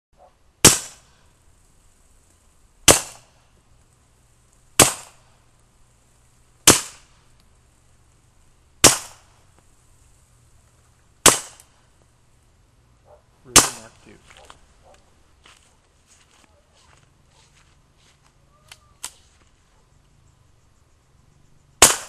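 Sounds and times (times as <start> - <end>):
suppressed pistol shots: 0.6 - 1.1, 2.9 - 3.3, 4.8 - 5.2, 6.6 - 7.1, 8.8 - 9.3, 11.2 - 11.7, 13.5 - 13.9, 21.8 - 22.0.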